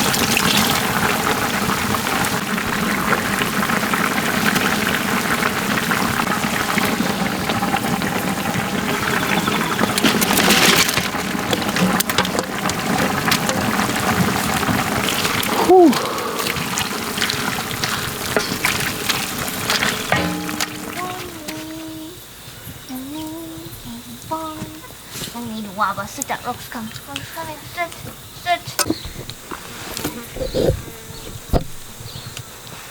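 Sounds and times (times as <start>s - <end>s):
liquid splashing and pouring: 10.0s - 21.2s.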